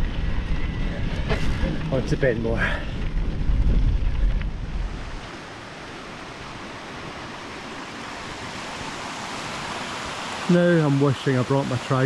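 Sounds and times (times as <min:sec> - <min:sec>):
wind rumbling on microphone: 0:00.0 - 0:05.3
waterfall rushing: 0:05.2 - 0:12.0.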